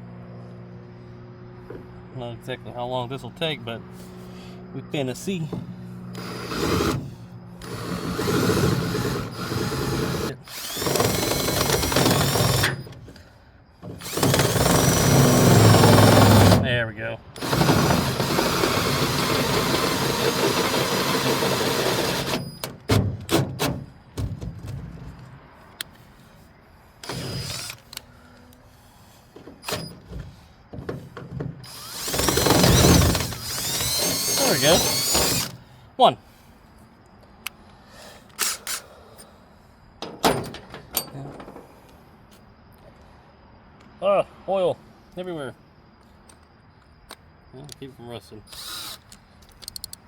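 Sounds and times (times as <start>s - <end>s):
electric drill boring through metal: 6.2s - 12.9s, 14.0s - 16.6s, 17.4s - 22.6s, 27.0s - 27.8s, 31.6s - 35.6s, 48.5s - 49.0s.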